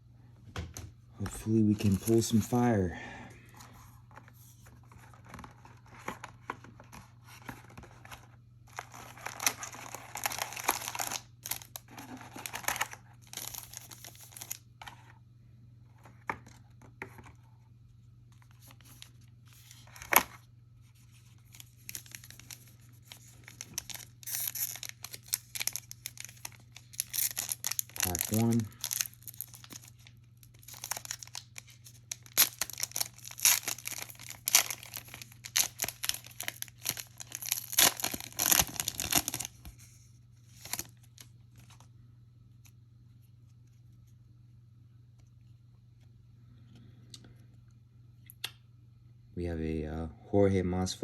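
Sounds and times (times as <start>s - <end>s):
plastic wrapping tearing and crinkling: 8.7s - 14.6s, 21.4s - 39.6s, 40.5s - 41.2s.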